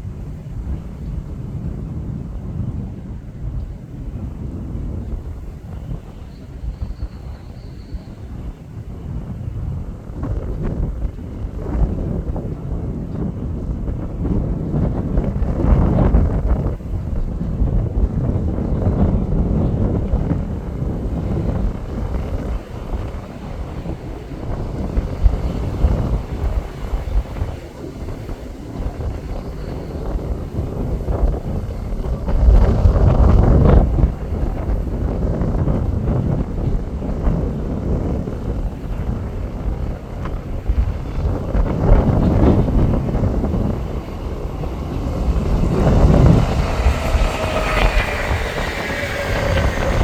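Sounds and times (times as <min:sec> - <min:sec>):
wind buffeting microphone: 0:00.0 - 0:50.0
electric train motor whine: 0:40.8 - 0:50.0.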